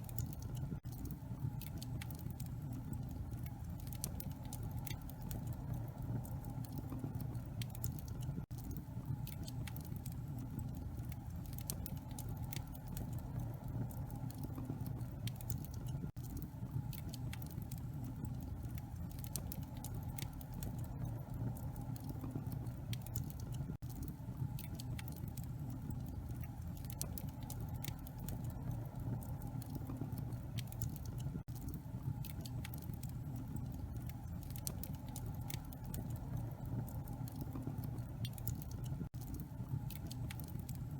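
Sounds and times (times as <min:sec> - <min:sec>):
low rumble of flame: 0:00.0 - 0:40.9
wood fire crackling: 0:00.0 - 0:40.9.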